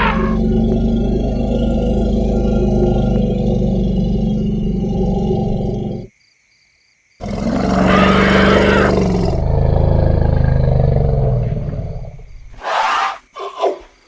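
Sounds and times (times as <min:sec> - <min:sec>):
elephant calling: 0:00.0 - 0:03.3.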